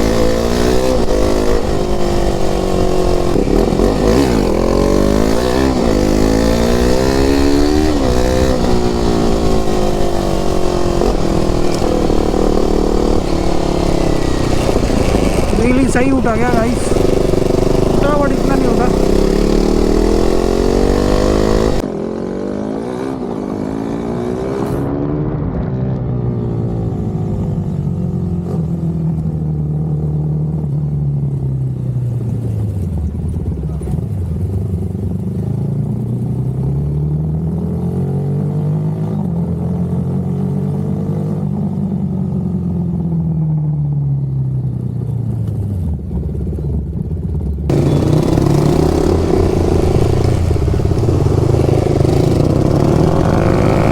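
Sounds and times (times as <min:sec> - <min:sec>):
loud rushing noise: 0:00.0 - 0:21.8, 0:47.7 - 0:53.9
motorcycle engine revving: 0:00.0 - 0:25.4, 0:45.2 - 0:53.9.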